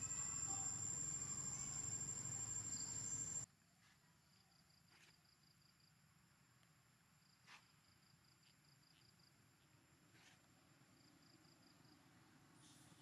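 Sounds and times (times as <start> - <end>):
steady high whine: 0.0 - 3.4
faint rapid insect chirping: 0.0 - 3.5.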